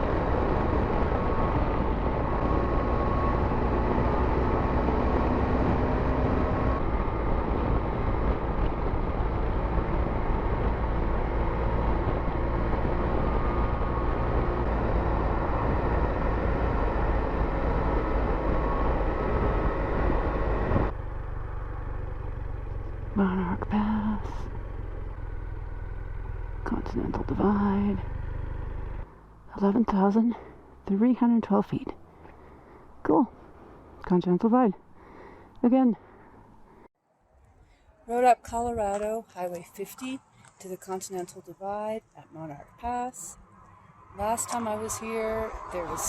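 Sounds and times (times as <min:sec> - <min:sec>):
motorcycle engine running: 0:00.0 - 0:35.0
wind and road noise: 0:00.0 - 0:46.0.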